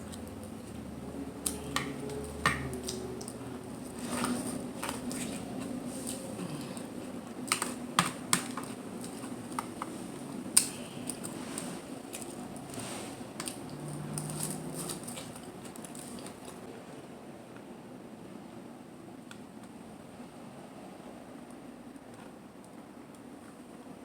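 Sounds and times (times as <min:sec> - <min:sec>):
chewing shellfish: 0:00.0 - 0:16.7.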